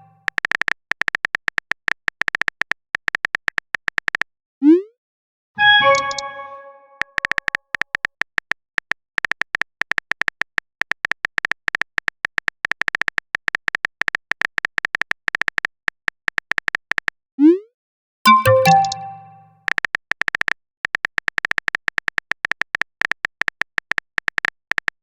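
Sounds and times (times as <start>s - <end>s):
message notification chime: 5.6s - 7.0s, 18.3s - 19.5s
phone keyboard clicky ticks: 7.0s - 17.2s, 18.3s - 25.0s.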